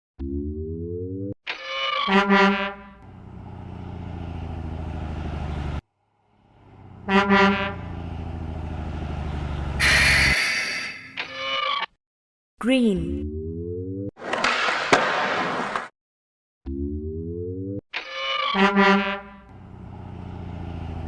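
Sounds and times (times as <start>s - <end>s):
truck horn honking: 2.1s - 3.1s, 6.8s - 8.1s, 9.7s - 11.0s, 18.6s - 19.6s
diesel engine running: 2.9s - 10.8s, 19.4s - 21.0s
loud hissing: 9.8s - 11.0s.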